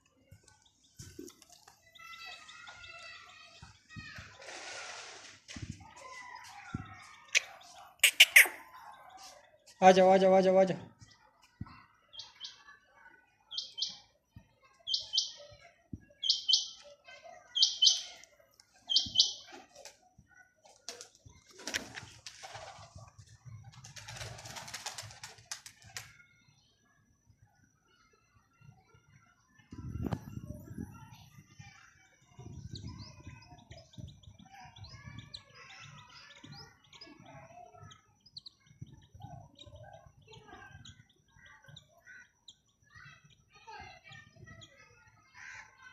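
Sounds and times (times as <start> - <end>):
birds chirping: 0.0 - 26.8, 29.3 - 45.9
bird double chirps: 7.3 - 8.8, 14.9 - 15.4, 16.2 - 16.8, 17.5 - 18.2, 18.9 - 19.5.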